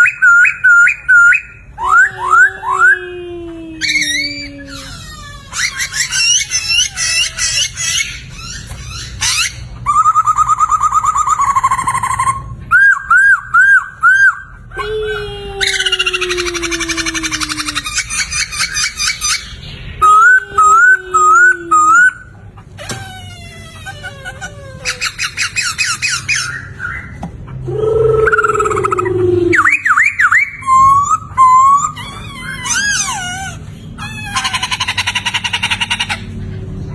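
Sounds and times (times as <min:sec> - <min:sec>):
bird singing whistled song: 0:00.0 - 0:02.9, 0:09.9 - 0:14.5
laughingthrush singing: 0:00.0 - 0:22.8, 0:23.5 - 0:36.9
bird chattering and trilling: 0:03.8 - 0:14.8, 0:15.6 - 0:22.8, 0:23.4 - 0:36.7.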